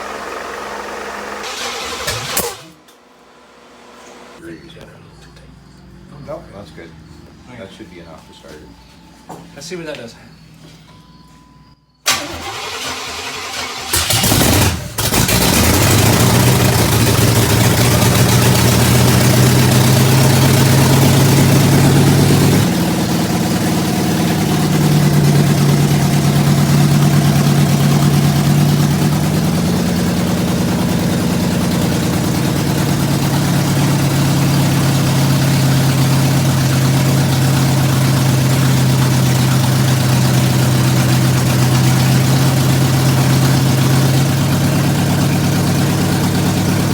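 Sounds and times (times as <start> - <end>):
starter cranking engine: 0.0 - 2.8, 12.1 - 46.9
engine running: 0.0 - 9.5, 12.1 - 46.9.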